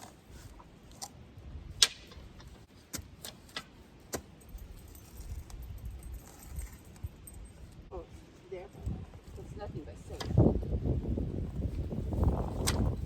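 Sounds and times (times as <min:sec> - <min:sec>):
post hole digger clinking in soil: 0:02.9 - 0:07.8.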